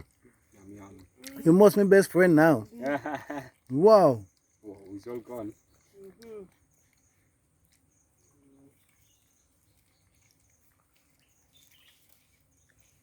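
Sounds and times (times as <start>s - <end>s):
faint high bird chirps: 4.0s - 13.0s.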